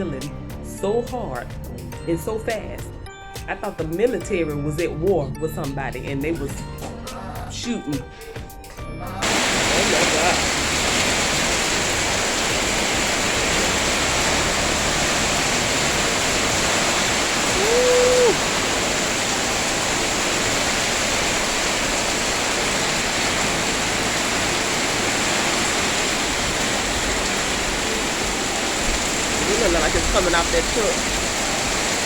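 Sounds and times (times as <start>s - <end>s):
heavy rain pouring: 9.2s - 32.0s.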